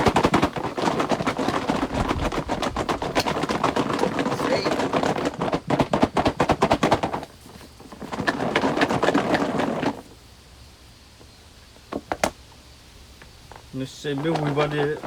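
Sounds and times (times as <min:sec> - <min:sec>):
noisy clatter: 0:00.0 - 0:10.2, 0:13.5 - 0:15.0.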